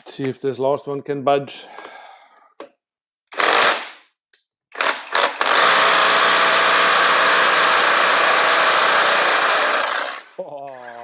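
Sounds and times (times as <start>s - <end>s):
power tool spinning: 3.4s - 3.9s, 4.8s - 11.0s.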